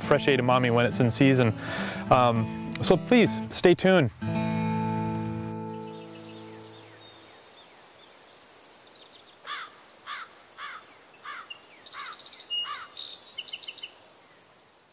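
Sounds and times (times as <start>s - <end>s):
faint high hiss: 0.2s - 14.9s
bird call notes: 5.5s - 7.3s
high rapid bird trills: 9.4s - 14.0s.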